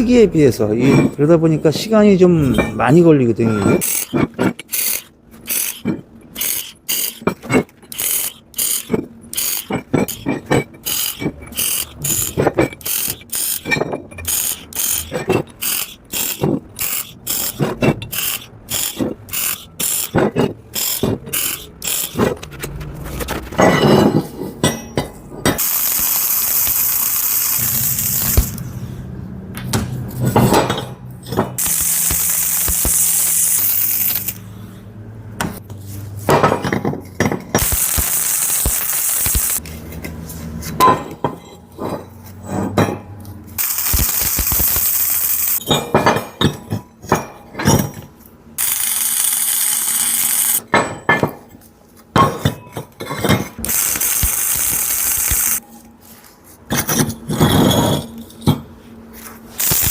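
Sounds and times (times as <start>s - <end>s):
metallic clinks and knocks: 2.3s - 5.0s, 5.6s - 25.8s, 39.4s - 49.1s, 50.5s - 55.8s
welding arc hissing and crackling: 14.3s - 17.6s, 25.6s - 28.6s, 31.6s - 34.4s, 37.6s - 39.6s, 43.6s - 45.6s, 48.6s - 50.6s, 53.6s - 55.6s, 59.6s - 59.9s.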